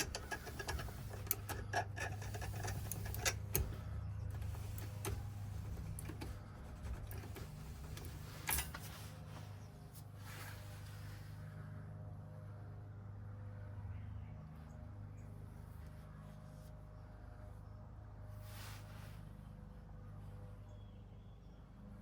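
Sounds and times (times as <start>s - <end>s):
key clicking in lock cylinder: 0.0s - 8.8s
steady low hum: 0.0s - 22.0s.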